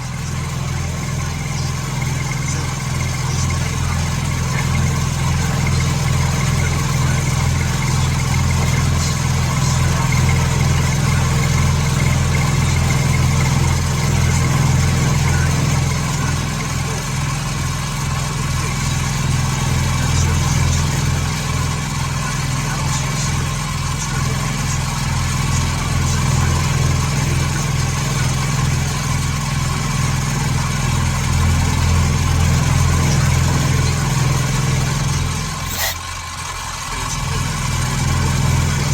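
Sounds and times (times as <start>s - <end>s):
machine tool humming: 35.4s - 36.2s.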